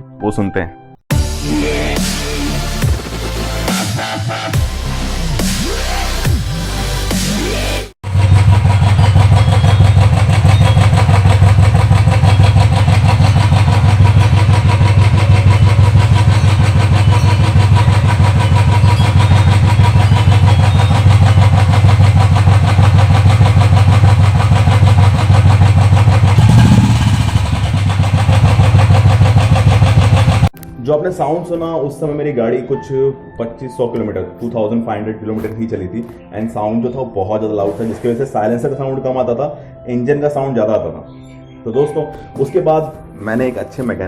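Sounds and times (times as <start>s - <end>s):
electronic music: 1.1s - 10.4s
motorcycle engine idling with tappet tick: 8.2s - 30.6s.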